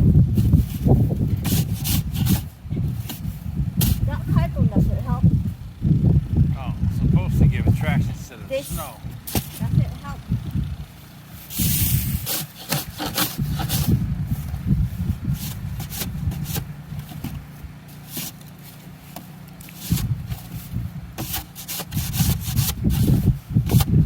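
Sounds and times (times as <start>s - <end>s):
car engine running: 0.0s - 24.0s
scraping and crunching in snow: 0.3s - 4.6s, 11.2s - 24.0s.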